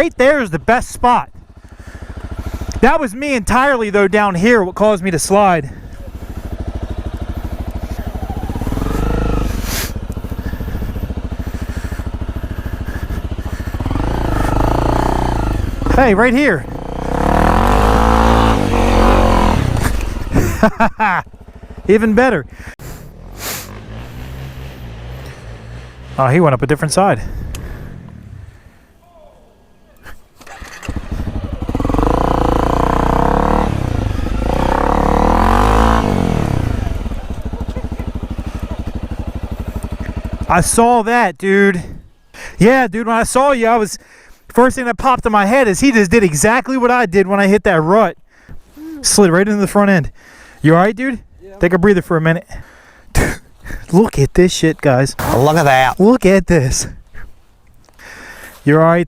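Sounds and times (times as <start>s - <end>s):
motorcycle engine pulsing: 1.3s - 3.4s, 5.6s - 26.2s, 30.4s - 40.5s, 55.2s - 56.1s
short burst of noise: 55.2s - 56.0s.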